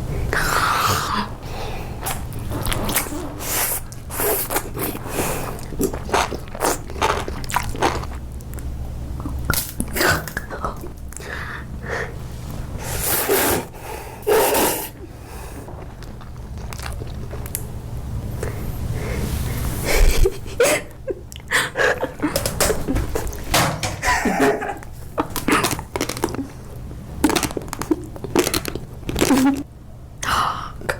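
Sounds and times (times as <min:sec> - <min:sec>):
crunchy chewing of food: 0:02.0 - 0:11.3, 0:14.5 - 0:18.8, 0:24.9 - 0:29.7.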